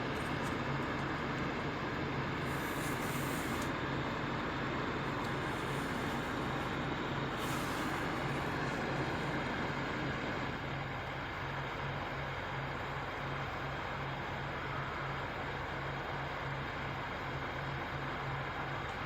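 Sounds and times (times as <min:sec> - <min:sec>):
truck engine humming: 0:00.0 - 0:19.0.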